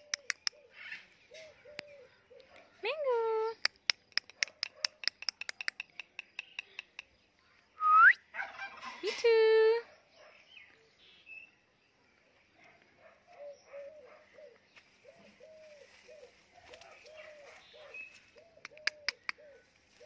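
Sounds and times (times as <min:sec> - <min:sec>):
sharp clicks: 0:00.0 - 0:00.6, 0:03.6 - 0:07.2
bird cooing: 0:00.0 - 0:02.6, 0:13.3 - 0:20.0.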